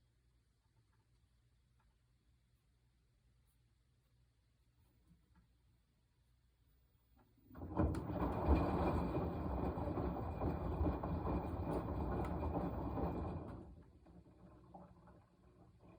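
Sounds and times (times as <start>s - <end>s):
washing machine rumbling: 7.4s - 15.9s.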